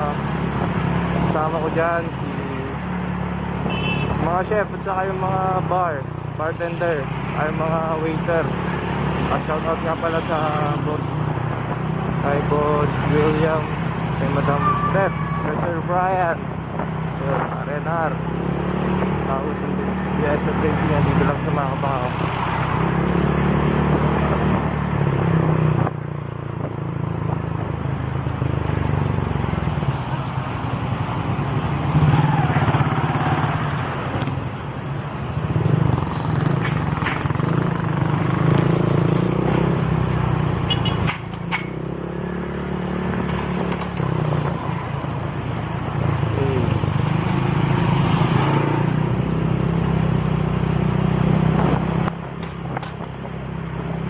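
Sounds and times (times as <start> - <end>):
scooter engine revving: 28.0 - 54.0.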